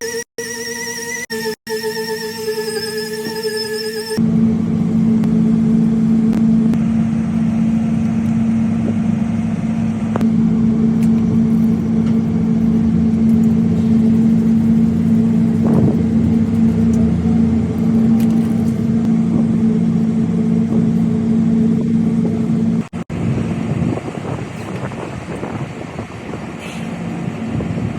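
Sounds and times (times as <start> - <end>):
machine humming loudly: 0.0 - 25.6.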